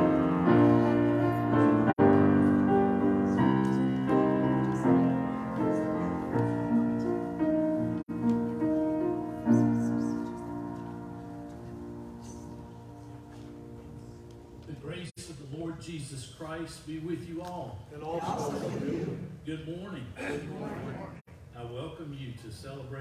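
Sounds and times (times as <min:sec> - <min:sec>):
piano playing slow chords: 0:00.0 - 0:14.7.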